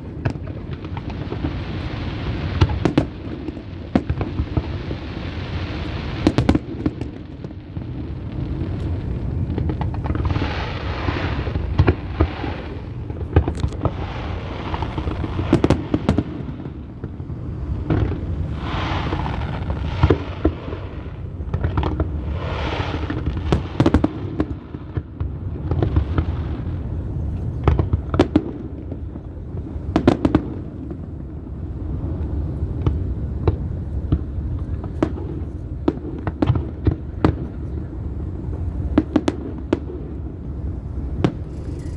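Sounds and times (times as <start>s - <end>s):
fireworks bangs: 0.0s - 41.9s
fireworks hiss: 7.9s - 24.1s, 40.7s - 41.9s
low rumble: 8.2s - 22.2s.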